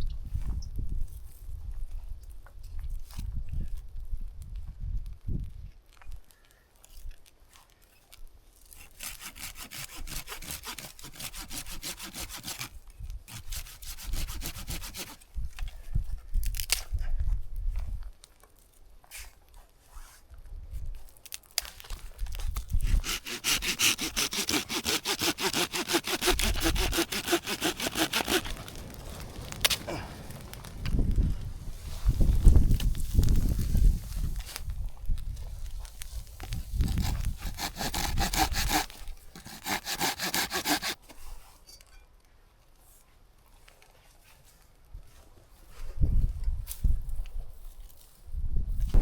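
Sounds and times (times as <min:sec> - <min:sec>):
hand saw cutting wood: 0:08.8 - 0:15.2, 0:22.8 - 0:29.2, 0:36.8 - 0:41.4.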